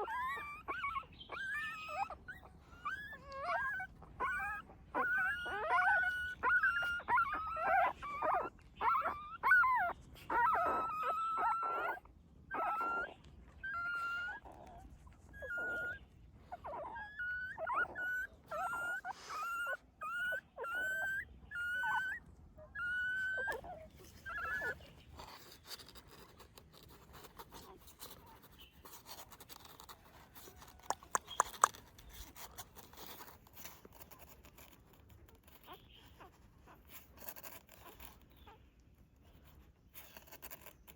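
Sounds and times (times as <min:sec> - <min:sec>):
puppies squealing: 0:00.0 - 0:40.9
faint rustling: 0:13.1 - 0:20.1, 0:20.9 - 0:40.9.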